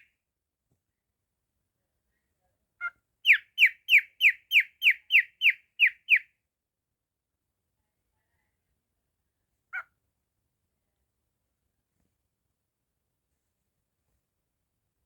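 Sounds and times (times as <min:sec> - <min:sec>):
cockatiel calling: 0:03.2 - 0:06.2.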